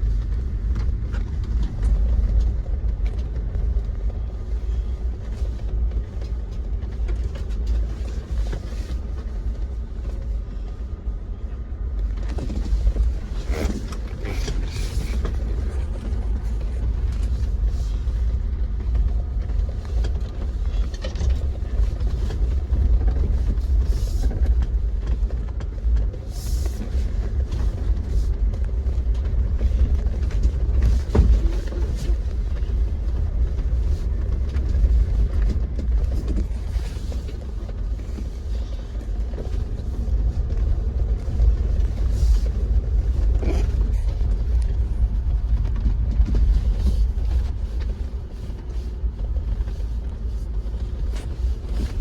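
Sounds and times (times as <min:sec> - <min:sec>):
engine and road rumble: 0:00.0 - 0:52.0
vehicle body knocks and creaks: 0:27.3 - 0:47.9.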